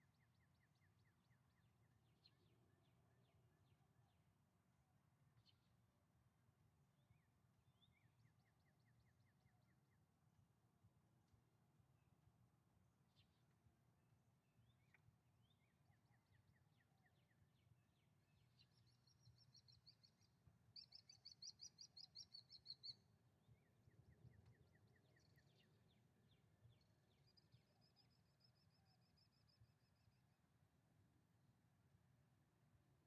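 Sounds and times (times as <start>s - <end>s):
small birds chirping: 14.6s - 30.0s.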